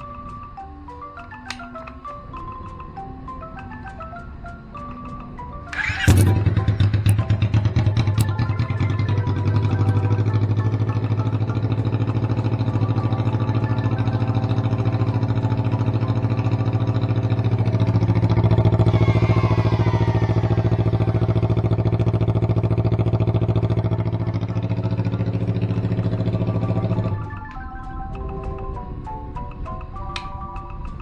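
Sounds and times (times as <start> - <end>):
motorcycle engine idling loudly: 5.8 - 27.2.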